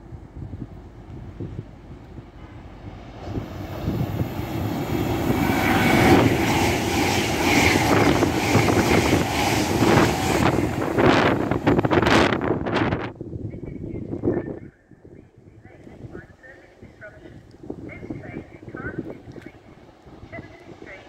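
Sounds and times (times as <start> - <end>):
wind buffeting microphone: 0.0 - 21.0
rush of air: 1.2 - 13.4.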